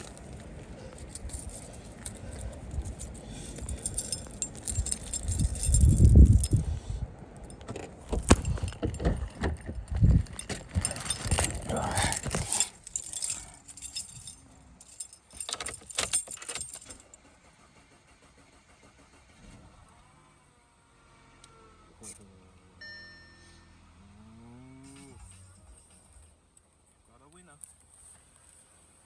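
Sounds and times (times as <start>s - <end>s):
car keys jangling: 0.0s - 17.2s.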